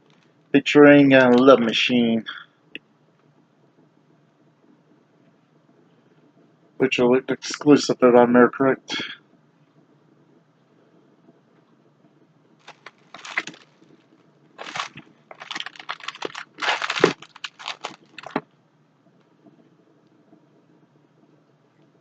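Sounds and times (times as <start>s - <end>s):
packaging crinkling: 12.6s - 13.9s, 14.6s - 18.4s.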